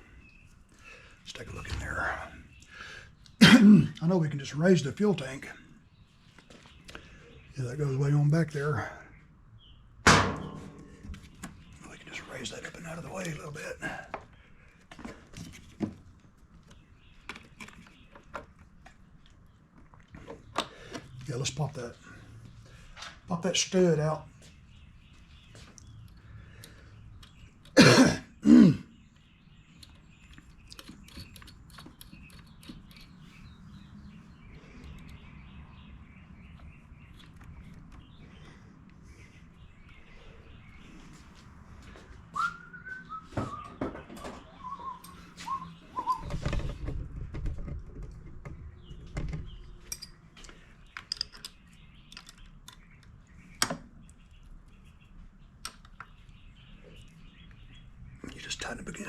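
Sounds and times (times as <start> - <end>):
man coughing: 3.4 - 4.0, 27.8 - 28.9
faint scattered clicks: 34.6 - 35.3
man whistling: 42.4 - 43.7, 44.6 - 46.3.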